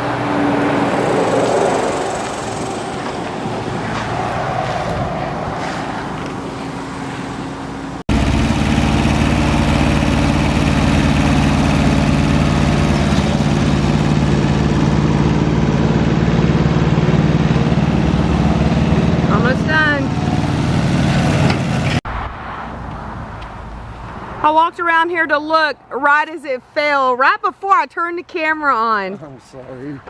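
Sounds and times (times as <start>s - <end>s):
engine idling: 5.8s - 22.0s.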